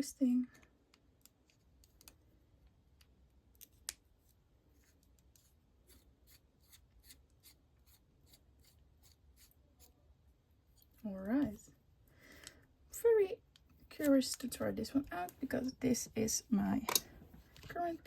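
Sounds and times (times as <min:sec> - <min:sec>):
small plastic clicks and scrapes: 0:00.9 - 0:02.2.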